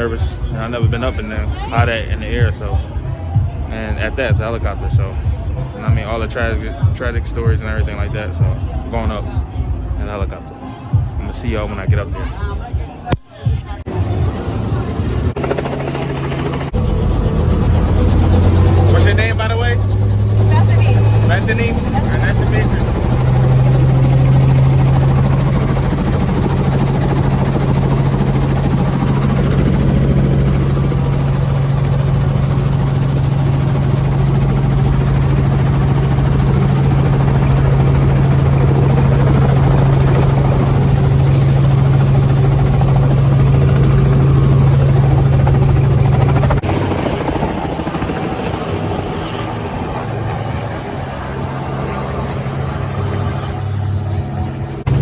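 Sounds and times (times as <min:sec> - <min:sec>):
helicopter engine and rotor: 0:13.8 - 0:55.0.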